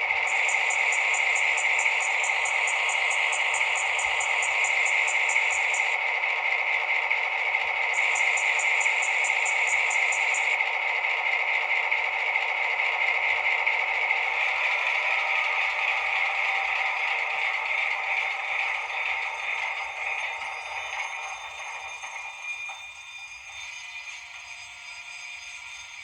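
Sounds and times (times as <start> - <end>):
railway signal bell ringing: 0.2 - 6.0, 7.9 - 10.6.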